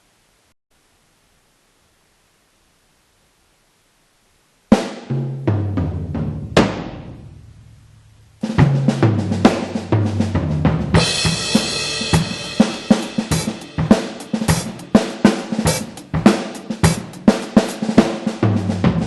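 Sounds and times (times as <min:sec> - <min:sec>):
drum beat of kick snare hi-hat: 0:04.7 - 0:19.0
drum fill on low pitched drums: 0:04.7 - 0:19.0
crash cymbal ringing: 0:11.0 - 0:16.0.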